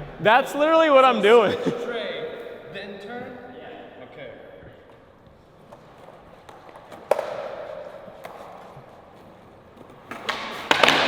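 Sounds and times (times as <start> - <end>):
skateboard rolling: 5.4 - 11.0
skateboard tail popping: 5.6 - 9.0, 9.8 - 11.0
skateboard knocking: 10.1 - 11.0.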